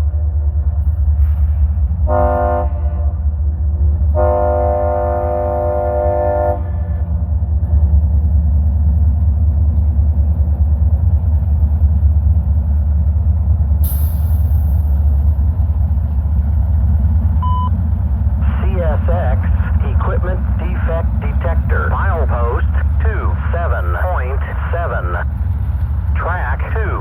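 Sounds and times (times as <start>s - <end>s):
locomotive engines rumbling: 0.0s - 27.0s
locomotive air horn blasts: 2.1s - 3.2s, 4.2s - 7.0s.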